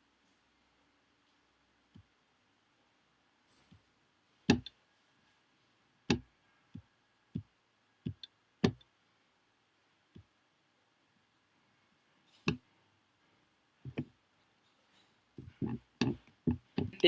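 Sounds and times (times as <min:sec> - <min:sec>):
sharp clicks and taps: 0:04.5 - 0:04.8, 0:06.1 - 0:08.9, 0:15.4 - 0:17.0.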